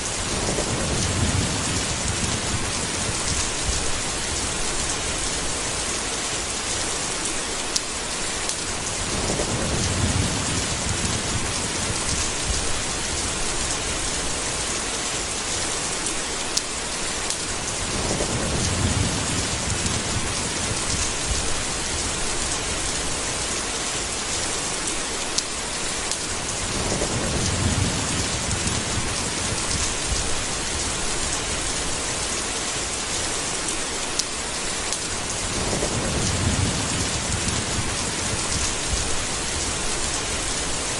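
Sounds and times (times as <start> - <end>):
heavy rain: 0.0 - 40.9
thunder rolling: 0.2 - 4.6, 9.0 - 13.8, 17.8 - 22.2, 26.6 - 31.0, 35.4 - 40.4.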